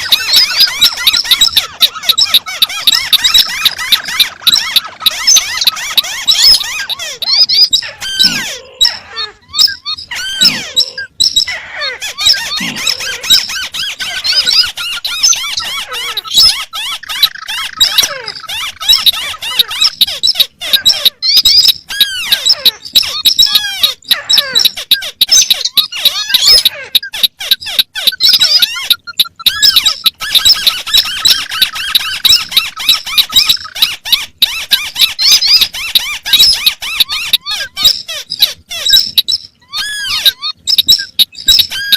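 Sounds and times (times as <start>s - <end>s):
crakes chattering calls: 0.0s - 41.9s.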